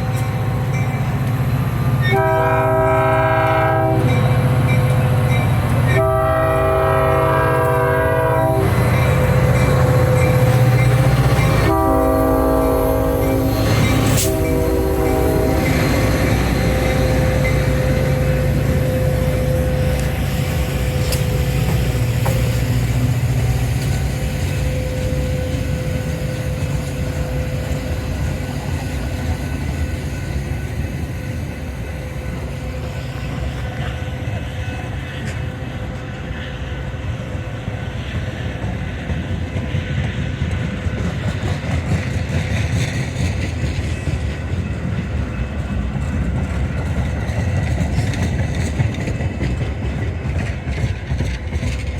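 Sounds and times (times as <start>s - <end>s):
train horn: 0.0s - 28.8s
diesel locomotive passing: 0.0s - 51.9s
train wheel noise: 0.0s - 51.9s.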